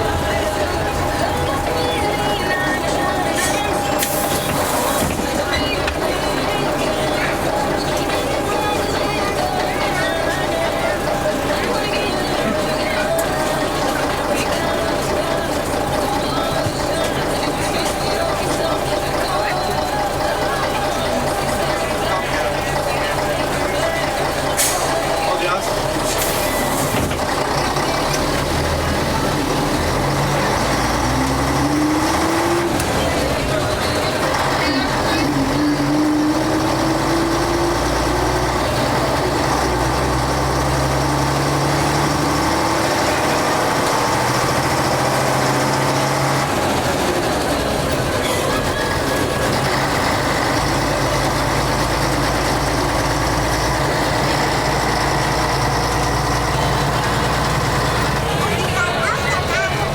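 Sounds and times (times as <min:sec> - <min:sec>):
bus engine running: 0:00.0 - 0:59.9.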